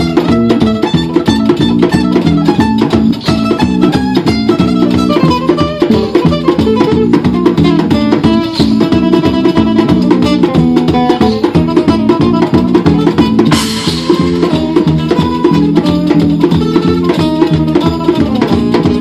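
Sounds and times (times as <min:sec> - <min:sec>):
percussion: 0:00.0 - 0:19.0
plucked acoustic guitar: 0:00.0 - 0:19.0
cymbal crash: 0:13.5 - 0:14.4.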